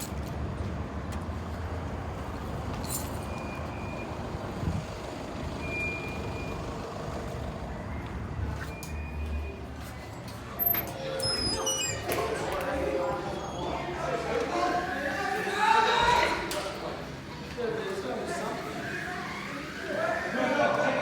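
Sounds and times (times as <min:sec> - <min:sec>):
vehicle engine and road noise: 0:00.0 - 0:13.2.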